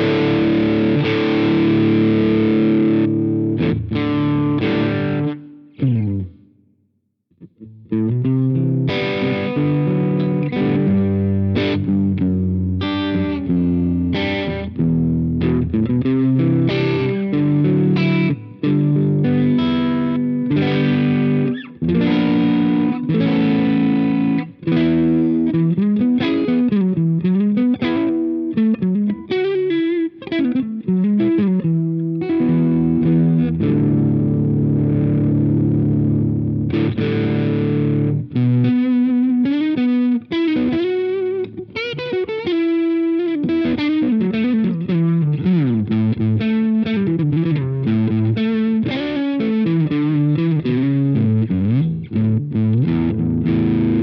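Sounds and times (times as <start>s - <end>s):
overdriven electric guitar: 0.0s - 6.7s, 7.4s - 54.0s.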